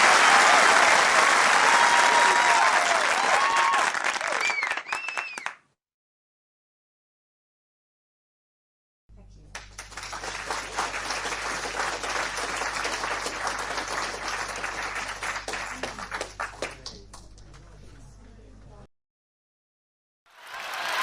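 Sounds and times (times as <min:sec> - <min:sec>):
crowd applause: 0:00.0 - 0:05.6, 0:09.6 - 0:17.5, 0:20.3 - 0:21.0.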